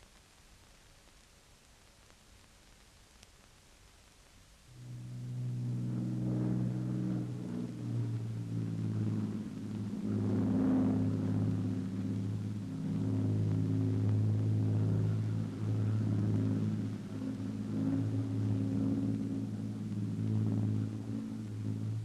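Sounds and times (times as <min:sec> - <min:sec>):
piston aircraft engines droning: 0:04.7 - 0:22.0.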